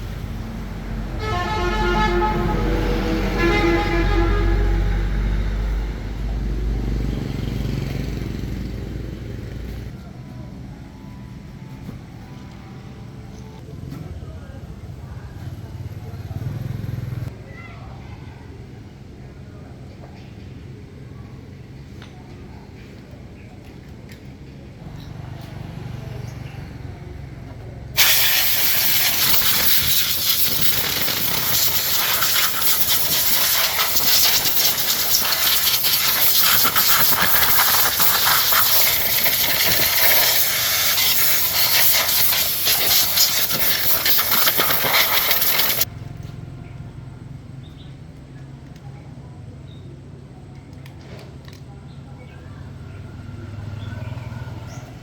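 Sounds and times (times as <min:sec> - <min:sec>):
pressurised air hissing: 0:28.0 - 0:45.9.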